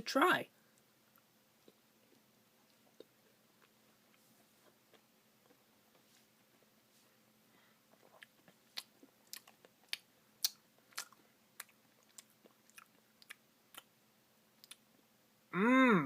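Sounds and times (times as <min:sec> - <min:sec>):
person chewing wetly: 0:01.1 - 0:06.7, 0:07.9 - 0:13.9, 0:14.6 - 0:14.9.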